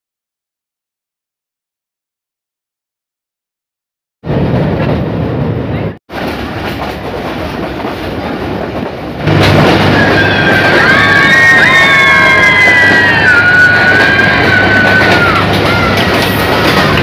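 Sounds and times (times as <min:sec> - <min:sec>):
train rattling rumble: 0:04.3 - 0:17.0
children shrieking: 0:09.9 - 0:17.0.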